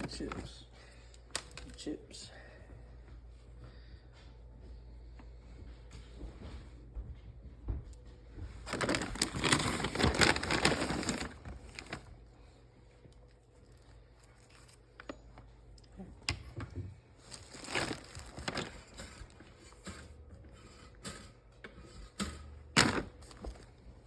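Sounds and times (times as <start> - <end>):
chips and container clattering: 8.7 - 11.4.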